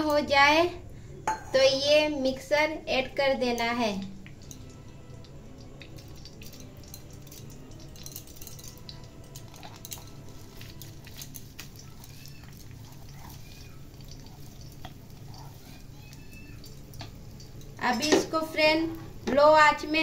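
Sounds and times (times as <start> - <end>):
low steady hum: 0.0 - 11.8
food crackling in hot ghee: 0.0 - 20.0.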